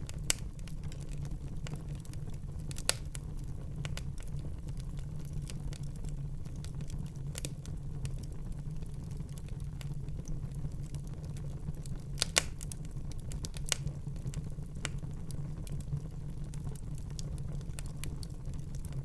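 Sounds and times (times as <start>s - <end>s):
sharp pops of fire: 0.0s - 2.0s, 2.7s - 4.2s, 12.0s - 15.2s
low rumble of flames: 0.0s - 19.0s
wood fire crackling: 0.0s - 19.0s.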